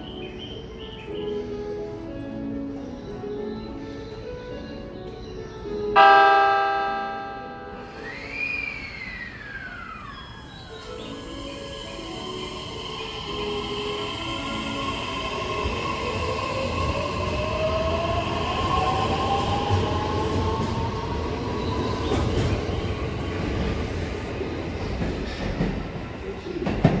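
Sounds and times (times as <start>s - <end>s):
electric train motor whine: 7.8s - 21.1s
wheels rumbling on rail: 8.9s - 27.0s.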